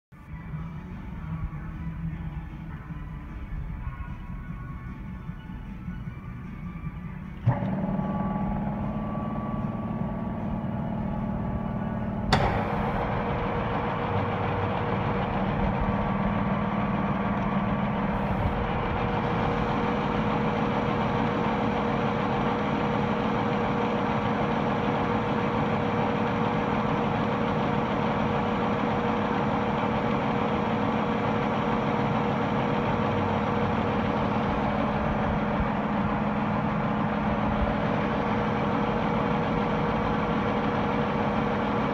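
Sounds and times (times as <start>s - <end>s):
sharp clunk: 7.4s - 16.3s
higher steady tone: 7.4s - 26.4s
metal lathe humming: 7.4s - 41.9s.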